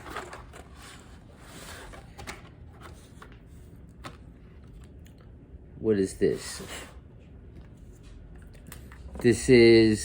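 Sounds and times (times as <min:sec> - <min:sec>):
cardboard cards rustling and clicking: 0:00.0 - 0:05.0
faint low room hum: 0:00.0 - 0:10.0.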